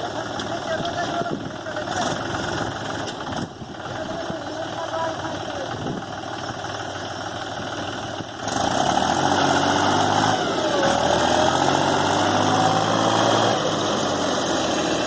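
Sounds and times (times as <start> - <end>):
tractor diesel engine revving: 0.0 - 15.0.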